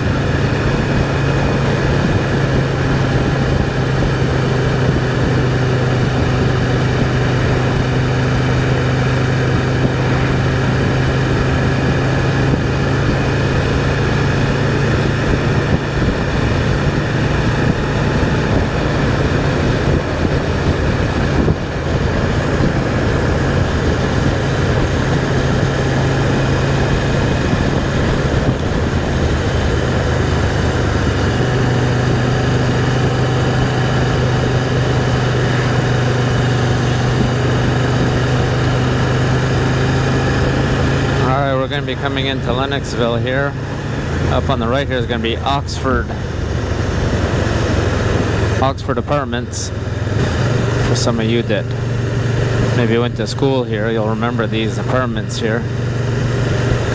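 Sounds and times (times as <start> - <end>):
motorcycle engine running: 0.0 - 56.9
road noise: 0.0 - 56.9
wind rush: 0.0 - 56.9.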